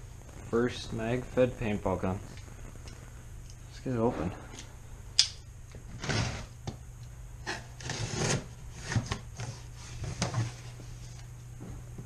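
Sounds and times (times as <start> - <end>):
packaging scraping and rubbing: 7.5 - 10.6.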